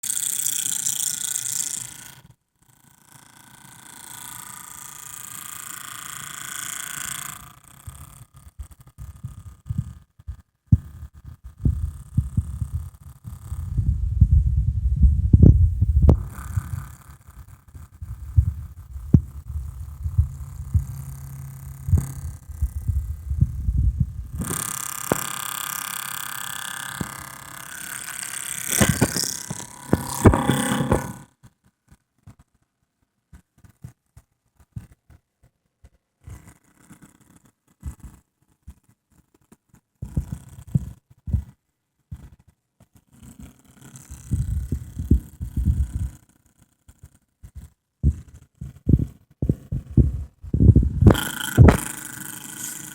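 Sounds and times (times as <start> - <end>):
laptop fan rattling: 3.2 - 10.0, 10.7 - 31.3, 43.8 - 46.4, 48.0 - 52.9.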